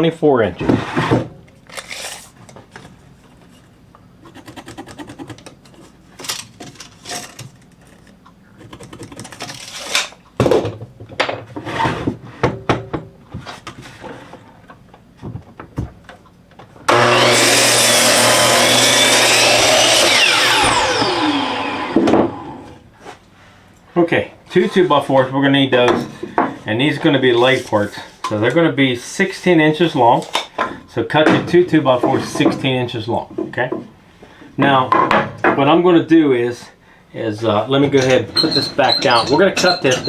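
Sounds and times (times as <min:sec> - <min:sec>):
electric miter saw cutting: 0:16.9 - 0:22.8
saw blade winding down whine: 0:16.9 - 0:22.8.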